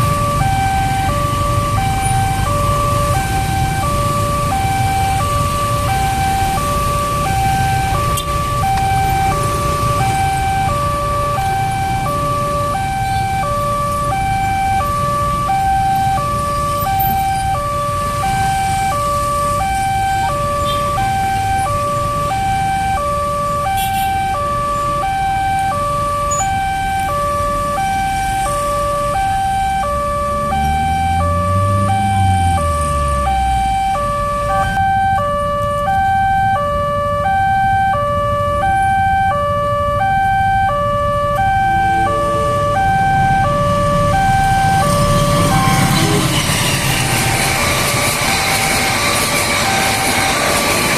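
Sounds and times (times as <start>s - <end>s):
two-tone crossing alarm: 0.0s - 50.9s
low engine note: 40.0s - 50.9s.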